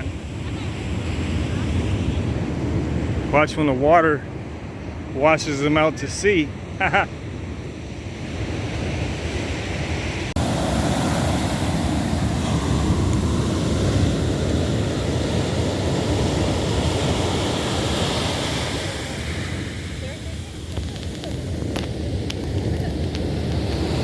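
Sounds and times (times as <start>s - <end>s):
wind on microphone: 0.0s - 5.3s, 6.3s - 24.0s
ocean surf washing on sand: 0.0s - 24.0s.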